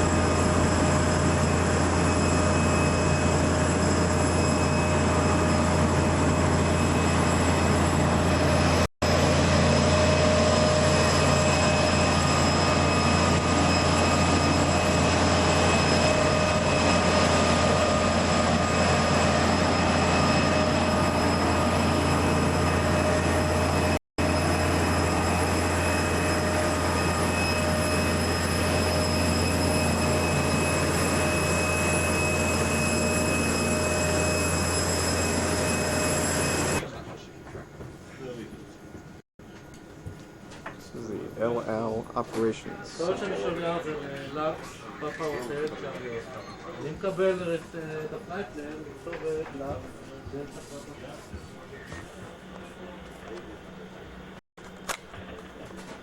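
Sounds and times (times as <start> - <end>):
jet aircraft rumble and turbine whine: 0.0 - 37.1.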